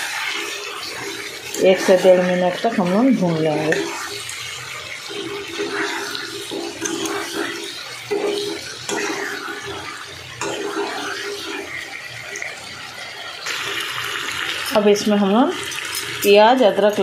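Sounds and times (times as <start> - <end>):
metal spatula scraping pan: 0.0 - 12.7
chicken sizzling in a pan: 0.0 - 17.0.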